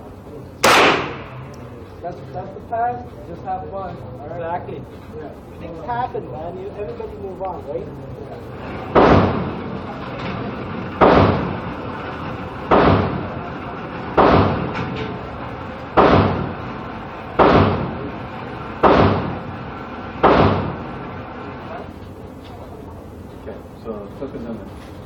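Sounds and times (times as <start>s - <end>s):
gunshots with echo: 0.6s - 1.5s, 8.8s - 9.6s, 11.0s - 11.8s, 12.6s - 13.4s, 14.0s - 14.9s, 15.9s - 21.0s.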